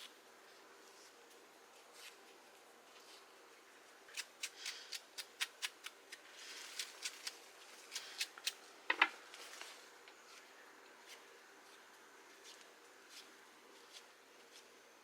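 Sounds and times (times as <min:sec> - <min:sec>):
knife scraping mushroom: 0:04.1 - 0:08.6.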